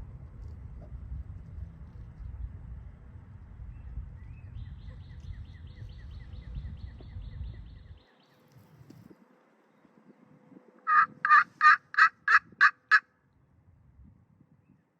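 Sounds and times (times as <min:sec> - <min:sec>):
low rumble on microphone: 0:00.0 - 0:11.2, 0:13.3 - 0:14.9
songbird trill: 0:03.6 - 0:10.0.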